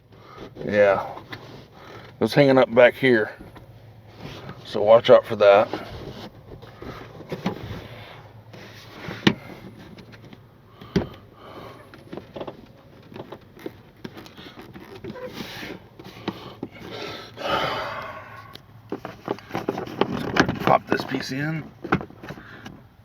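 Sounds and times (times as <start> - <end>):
breathy sniffs: 15.3 - 18.6.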